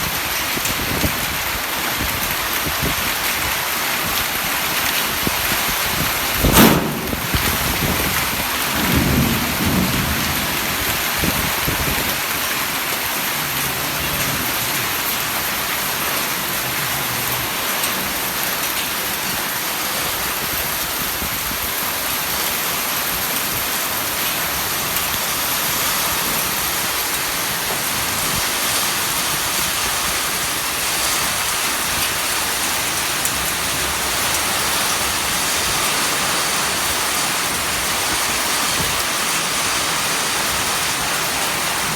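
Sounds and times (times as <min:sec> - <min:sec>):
heavy rain pouring: 0:00.0 - 0:41.9
low rumble: 0:06.4 - 0:10.7.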